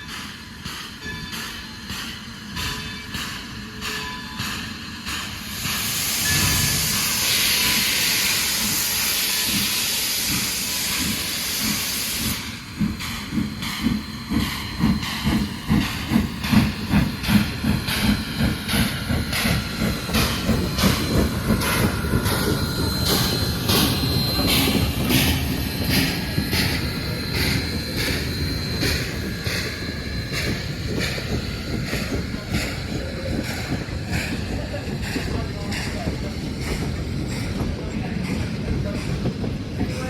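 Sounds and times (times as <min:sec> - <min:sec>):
locomotive steam hissing: 0:00.0 - 0:40.0
steam locomotive chuffing: 0:00.0 - 0:40.0.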